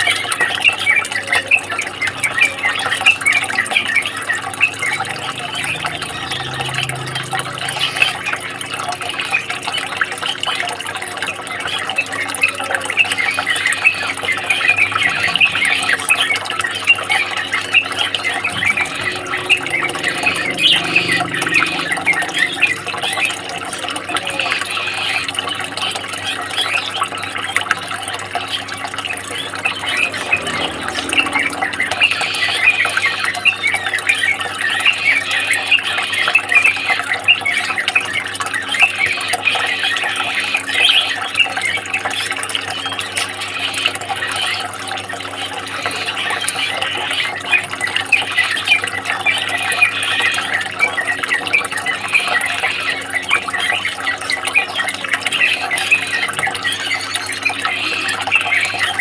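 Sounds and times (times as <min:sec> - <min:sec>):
songbirds chirping and twittering: 0:00.0 - 0:59.0
low hum: 0:03.6 - 0:10.6, 0:14.5 - 0:26.3, 0:27.6 - 0:34.6.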